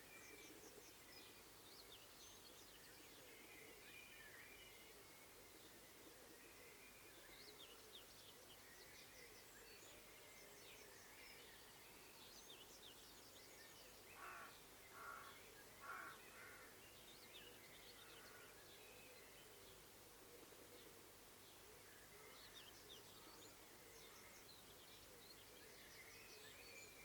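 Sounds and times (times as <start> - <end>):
crow cawing: 14.2 - 16.7.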